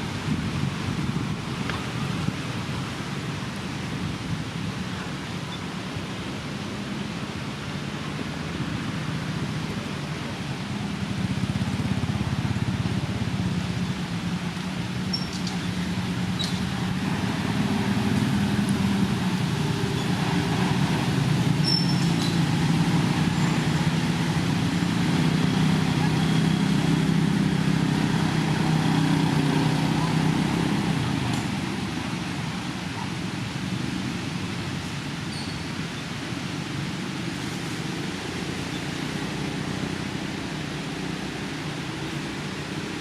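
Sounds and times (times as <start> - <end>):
low engine hum: 7.1 - 35.2.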